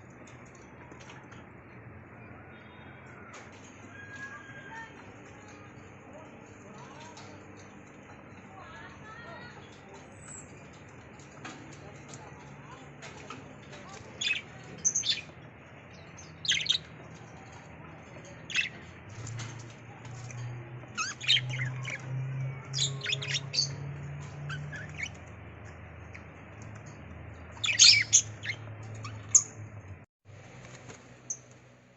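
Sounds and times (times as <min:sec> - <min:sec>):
budgerigars chirping: 0:16.4 - 0:16.9, 0:18.5 - 0:18.7, 0:22.8 - 0:23.8, 0:27.6 - 0:29.5.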